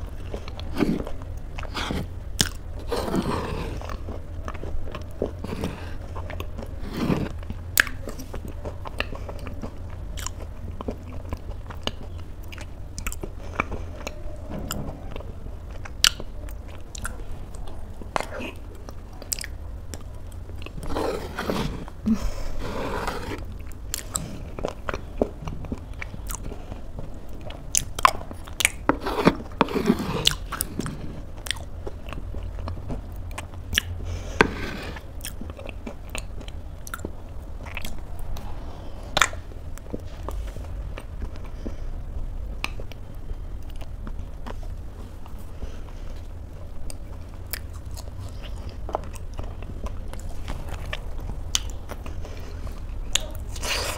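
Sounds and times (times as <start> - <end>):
wet chewing sounds: 0.0 - 53.9.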